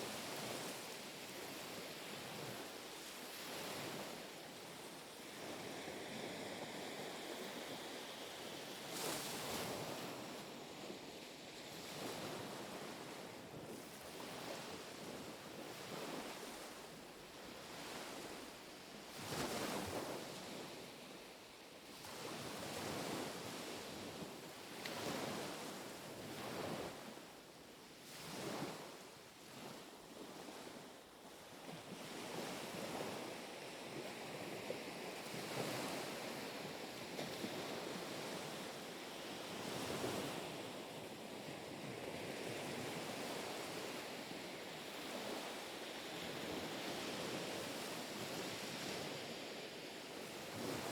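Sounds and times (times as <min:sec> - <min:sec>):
small waves lapping on shore: 0:00.0 - 0:50.9.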